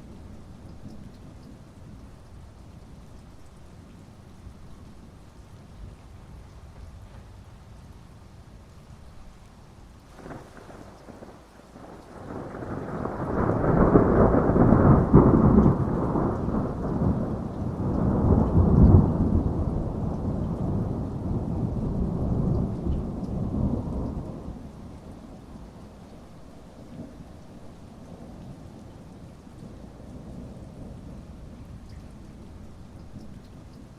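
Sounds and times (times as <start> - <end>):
steady rain: 0.0 - 33.9
thunder rumbling: 10.2 - 25.2.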